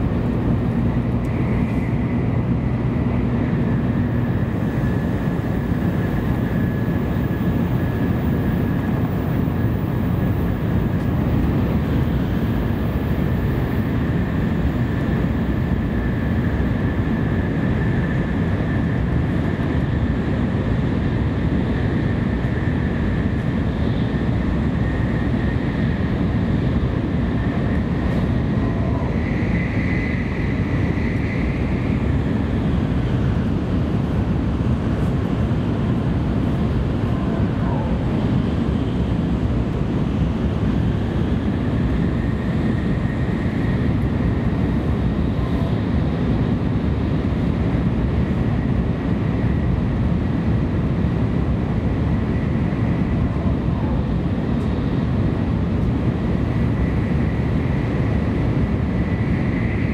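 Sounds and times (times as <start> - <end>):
faint high whine: 0.0 - 35.2
train rumble and rushing air: 0.0 - 59.9.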